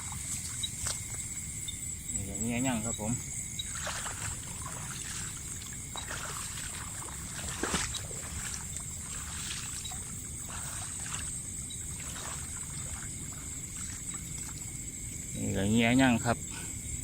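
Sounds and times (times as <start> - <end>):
water sloshing and splashing: 0.0 - 1.4, 3.0 - 15.3
high-pitched insect drone: 0.0 - 17.0.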